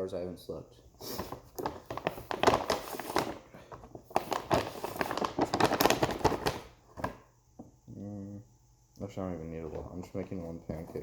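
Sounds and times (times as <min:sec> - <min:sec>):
crackling and crumpling: 0:01.1 - 0:07.2.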